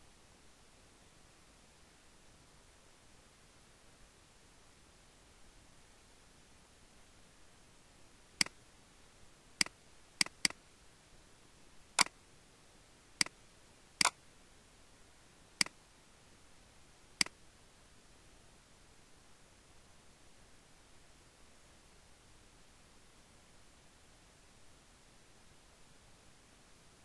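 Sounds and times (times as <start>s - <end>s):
computer mouse button clicking: 10.2s - 10.6s.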